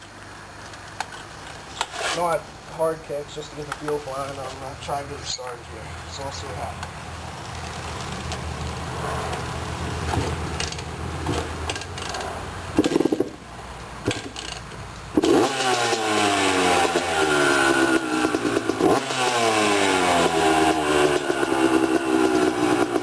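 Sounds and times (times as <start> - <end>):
engine kick-start: 12.8 - 13.4
two-stroke engine revving: 14.0 - 23.0.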